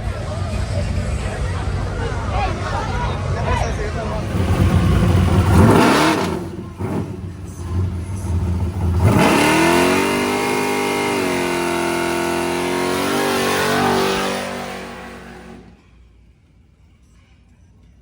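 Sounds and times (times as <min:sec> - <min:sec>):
car engine revving: 0:00.0 - 0:15.8.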